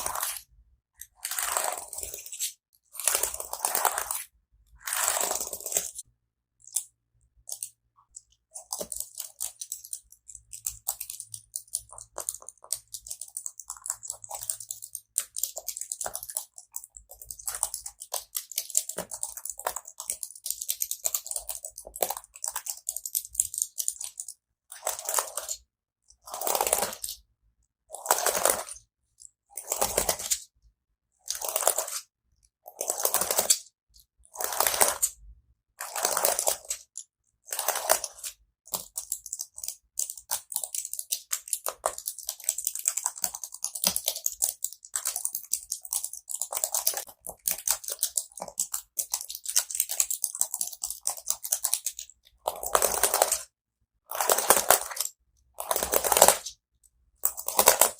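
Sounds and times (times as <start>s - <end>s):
scratchy strokes on keyboard: 0.0s - 6.0s
rapid small clicks: 4.9s - 27.2s, 32.7s - 53.5s.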